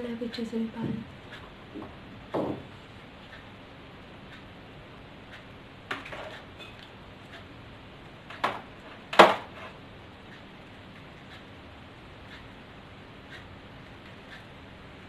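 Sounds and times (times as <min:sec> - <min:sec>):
faint ticking: 0:00.0 - 0:08.8, 0:09.8 - 0:15.0.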